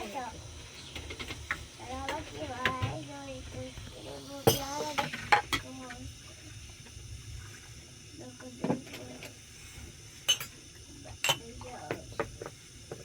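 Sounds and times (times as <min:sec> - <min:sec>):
dishes clinking: 0:10.2 - 0:10.6, 0:11.2 - 0:12.4.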